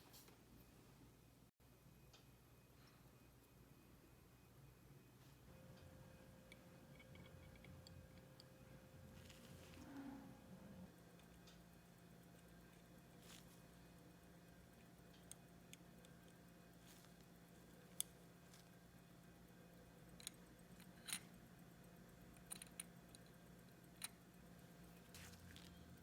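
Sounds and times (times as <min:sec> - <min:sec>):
small tools clicking and tapping: 0:06.5 - 0:08.5, 0:20.1 - 0:21.4, 0:22.3 - 0:24.3.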